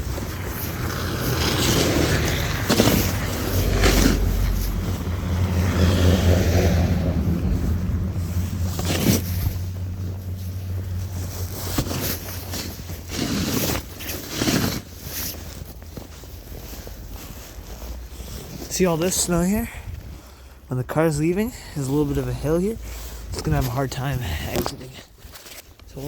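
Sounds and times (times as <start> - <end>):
vehicle driving past: 0.0 - 11.6
snow shovel scraping: 0.0 - 19.6, 21.2 - 26.0.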